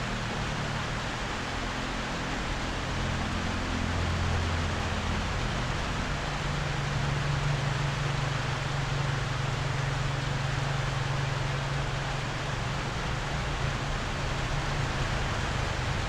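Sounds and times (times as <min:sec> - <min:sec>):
heavy rain on bamboo roof: 0:00.0 - 0:16.0.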